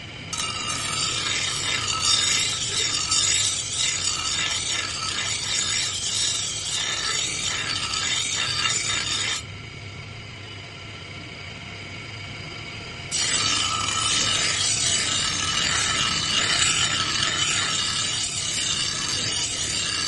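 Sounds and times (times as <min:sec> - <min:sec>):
steady hum: 0:00.0 - 0:20.0
metal scraping on steel blade: 0:00.4 - 0:09.4, 0:13.1 - 0:20.0.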